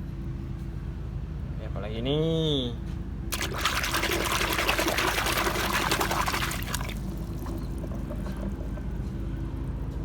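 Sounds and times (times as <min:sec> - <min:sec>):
water pouring and splashing: 0:03.3 - 0:08.8.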